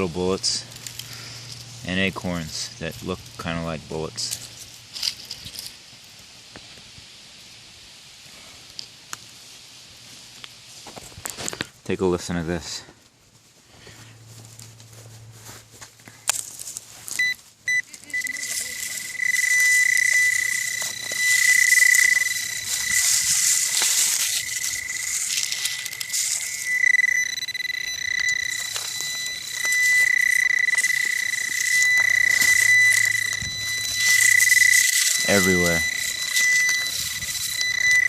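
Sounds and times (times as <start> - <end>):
steady hiss: 0.8 - 11.9, 18.6 - 26.7
metal detector alarm tone: 17.1 - 38.0.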